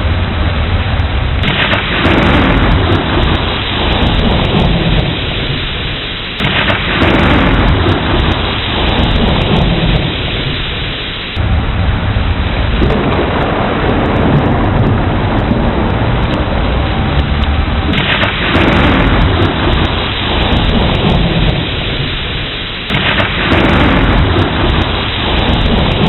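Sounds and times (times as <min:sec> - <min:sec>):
heavy rain: 0:00.0 - 0:26.0
low rolling thunder: 0:00.0 - 0:26.0.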